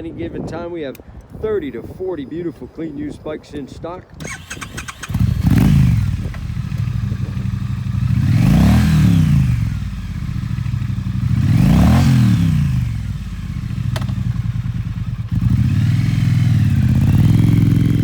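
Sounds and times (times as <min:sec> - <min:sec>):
motorcycle engine revving: 0:04.2 - 0:18.0.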